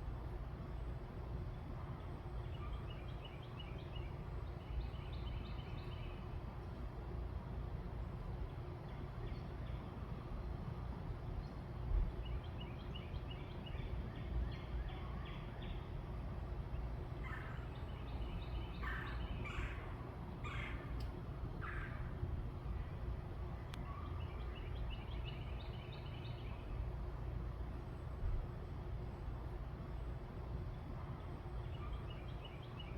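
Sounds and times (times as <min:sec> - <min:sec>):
low background rumble: 0:00.0 - 0:32.9
birds calling with high notes: 0:16.7 - 0:22.1.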